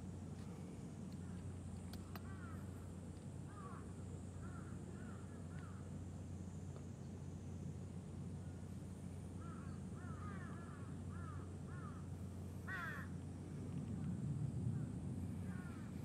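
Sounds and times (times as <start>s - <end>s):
low outdoor hum: 0.0s - 16.0s
bird calling: 9.4s - 13.2s.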